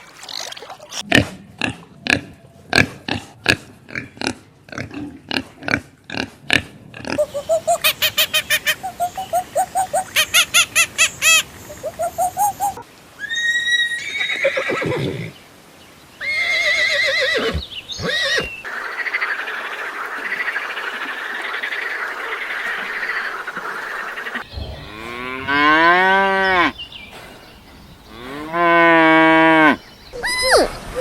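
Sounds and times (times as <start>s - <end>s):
horse whinnying: 13.2s - 15.3s, 16.2s - 18.6s.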